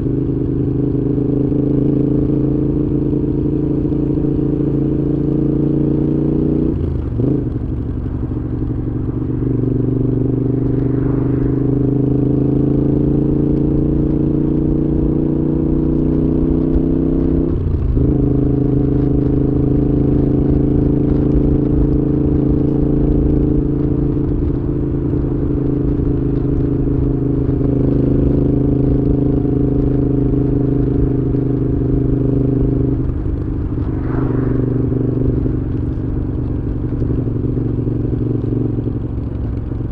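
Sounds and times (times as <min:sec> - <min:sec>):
motorcycle engine riding: 0:00.0 - 0:39.9.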